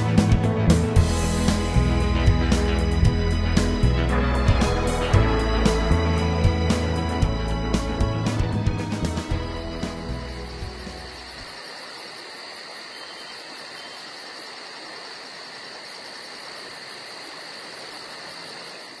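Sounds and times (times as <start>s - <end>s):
background music: 0.0s - 11.5s
constant hiss: 0.8s - 19.0s
insects chirping: 9.0s - 19.0s.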